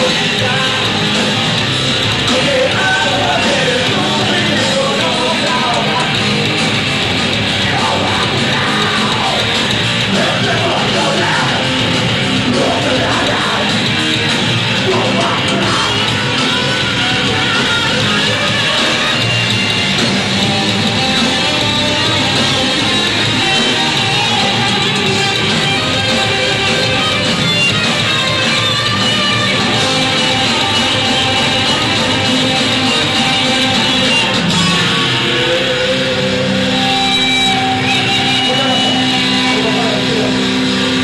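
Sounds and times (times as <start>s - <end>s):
live rock band playing: 0.0s - 41.0s
person yelling vocals: 7.7s - 9.5s.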